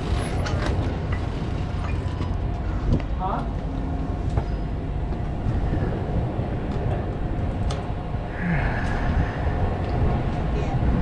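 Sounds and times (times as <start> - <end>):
bike tyres on dirt: 0.0 - 3.1
rumbling wind noise: 0.0 - 11.0.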